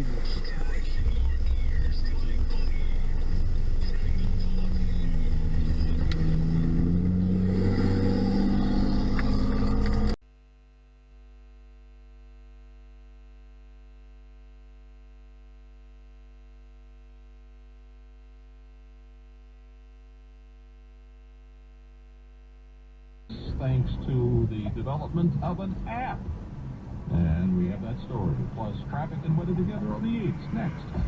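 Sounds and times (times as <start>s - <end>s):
car engine: 0.0s - 10.2s, 23.3s - 31.0s
road noise: 0.0s - 10.2s, 23.3s - 31.0s.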